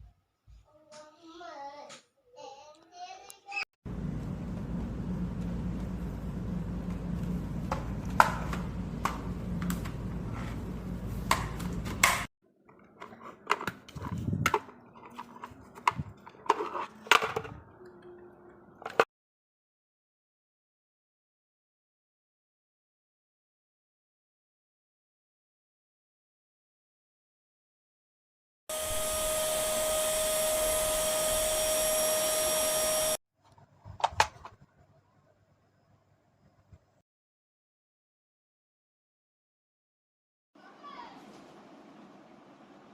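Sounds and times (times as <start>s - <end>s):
steady low hum: 3.9s - 12.3s
vacuum cleaner running: 3.9s - 12.3s, 28.7s - 33.2s.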